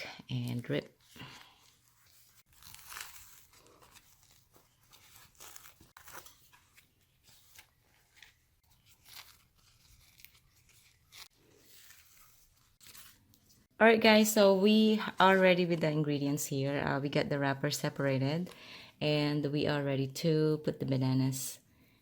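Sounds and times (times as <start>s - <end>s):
papery rustling and crinkling: 0.9s - 13.7s.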